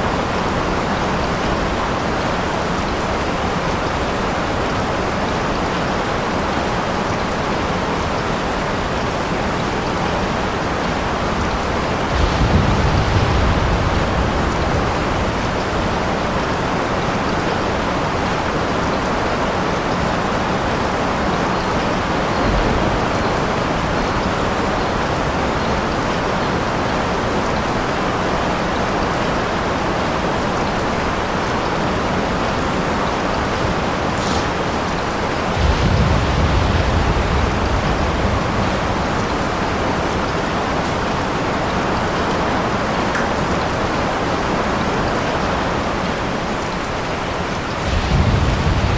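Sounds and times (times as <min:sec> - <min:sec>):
steady rain falling: 0:00.0 - 0:48.9
thunder rumble: 0:09.7 - 0:27.8, 0:32.0 - 0:44.9, 0:46.8 - 0:48.9.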